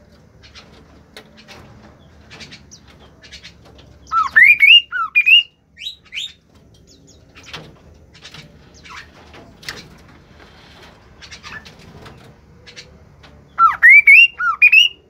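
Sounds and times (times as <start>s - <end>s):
bird whistling call: 4.1s - 6.3s, 13.6s - 15.0s.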